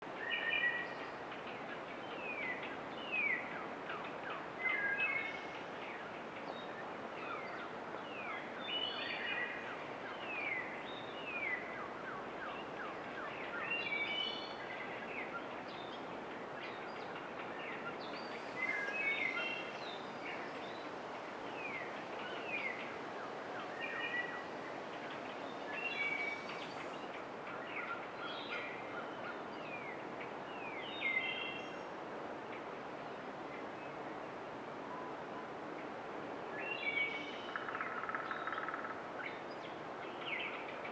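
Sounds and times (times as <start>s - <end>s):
songbirds singing: 6.6s - 31.9s
steady rushing hiss: 24.5s - 27.5s.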